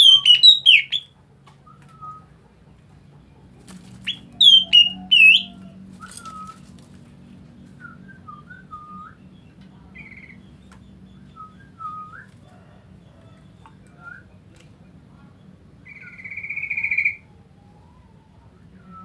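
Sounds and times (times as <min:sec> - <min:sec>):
bird whistling calls: 0:00.0 - 0:01.1, 0:04.1 - 0:06.6.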